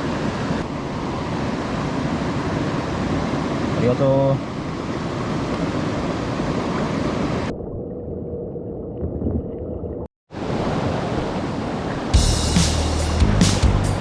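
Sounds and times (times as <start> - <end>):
rushing mountain stream: 0.0 - 7.5, 10.3 - 14.0.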